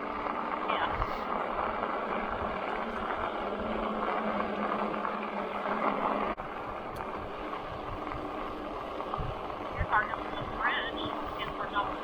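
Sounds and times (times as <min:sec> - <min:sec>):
faint steady hum: 0:00.0 - 0:12.0
tyre and wind noise: 0:07.1 - 0:10.6.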